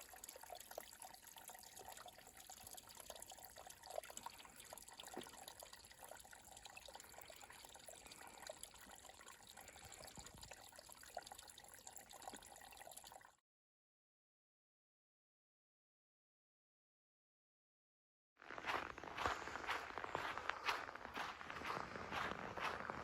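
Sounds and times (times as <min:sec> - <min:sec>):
small drips and ticks: 0:00.0 - 0:13.4
water trickling: 0:00.0 - 0:13.4.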